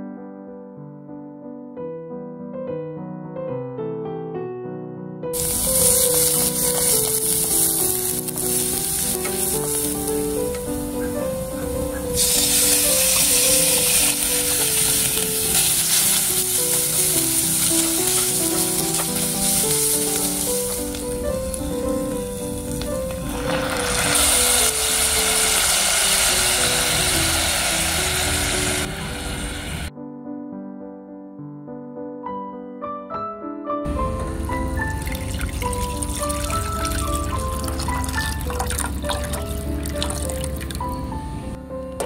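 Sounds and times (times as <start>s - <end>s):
piano music: 0.0s - 42.0s
garlic and chicken sizzling: 5.4s - 29.9s, 33.9s - 41.1s.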